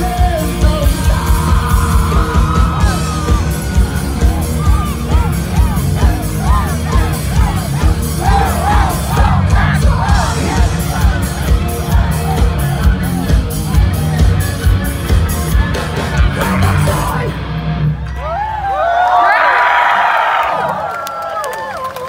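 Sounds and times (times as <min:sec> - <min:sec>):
rock band playing live: 0:00.0 - 0:18.4
crowd yelling and whooping: 0:00.2 - 0:22.0
guitar bending notes: 0:01.1 - 0:18.2.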